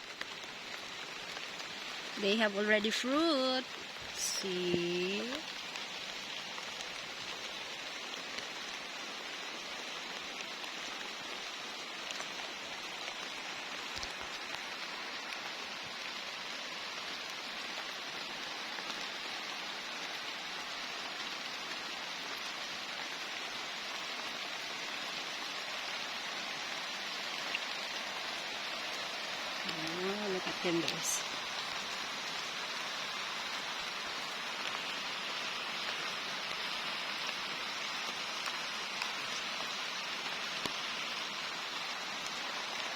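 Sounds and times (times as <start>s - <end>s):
rain on plants and ground: 0.0s - 42.9s
raindrop ticks: 12.0s - 14.7s.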